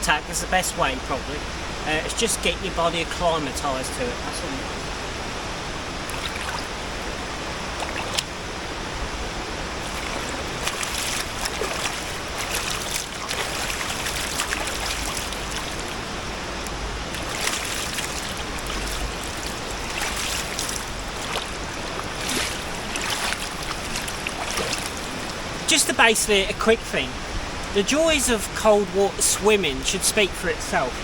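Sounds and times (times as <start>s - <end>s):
river water flowing: 0.0s - 31.0s
water splashes: 4.3s - 31.0s.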